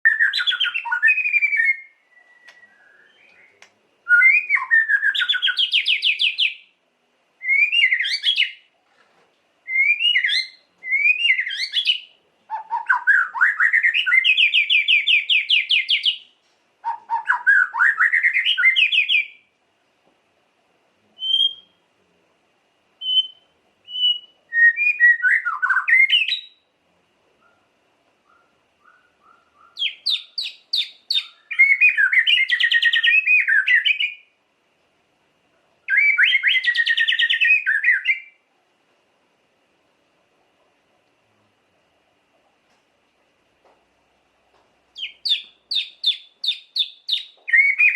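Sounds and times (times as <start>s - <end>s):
songbird singing shrill phrases: 0.0s - 6.8s, 7.4s - 8.7s, 9.6s - 19.5s, 21.2s - 21.9s, 23.0s - 26.8s, 28.2s - 34.4s, 35.8s - 38.4s, 45.0s - 47.9s.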